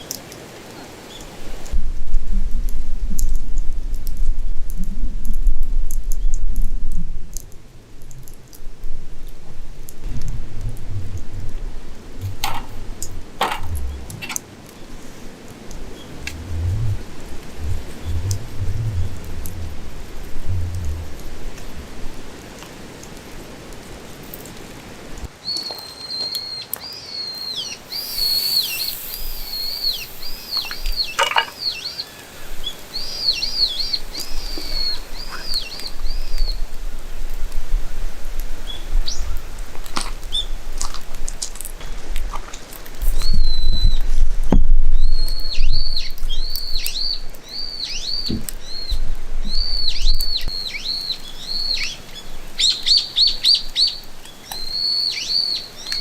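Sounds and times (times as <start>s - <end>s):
low rumble: 1.8s - 23.4s
bird singing high whistled notes: 15.9s - 21.9s, 25.4s - 36.6s, 45.0s - 54.0s, 54.6s - 56.0s.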